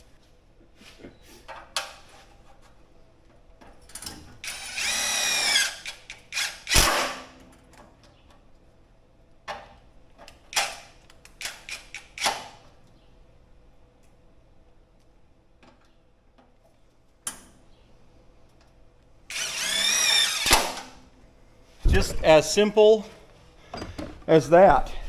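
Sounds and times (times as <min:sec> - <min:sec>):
power drill whining: 0:04.4 - 0:06.8, 0:19.3 - 0:20.7.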